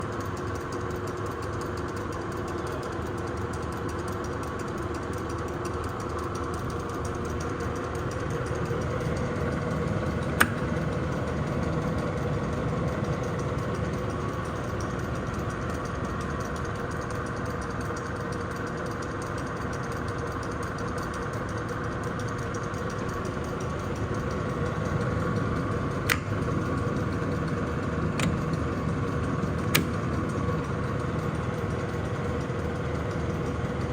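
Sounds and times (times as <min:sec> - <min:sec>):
lathe running: 0:03.0 - 0:33.9
sharp click: 0:08.4 - 0:15.9, 0:23.1 - 0:33.9.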